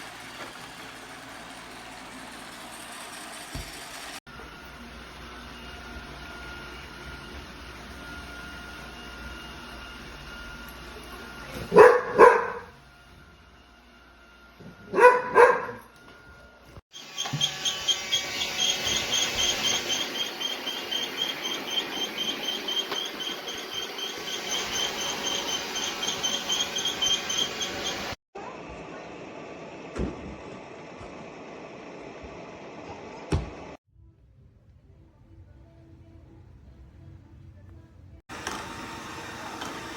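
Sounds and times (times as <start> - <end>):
dog barking: 11.7 - 12.7, 14.9 - 15.9.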